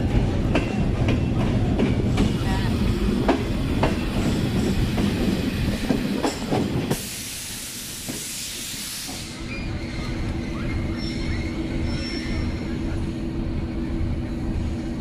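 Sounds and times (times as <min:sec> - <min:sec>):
idling train rumble: 0:00.0 - 0:15.0
sharp air hiss: 0:06.9 - 0:09.5.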